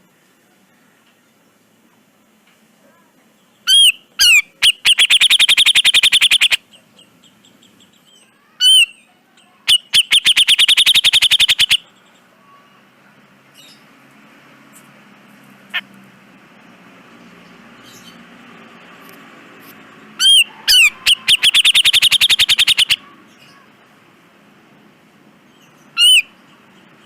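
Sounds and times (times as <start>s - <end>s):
faint hiss: 0.0s - 9.6s
bulbul chattering trills: 3.3s - 12.9s, 20.0s - 23.8s, 25.4s - 27.0s.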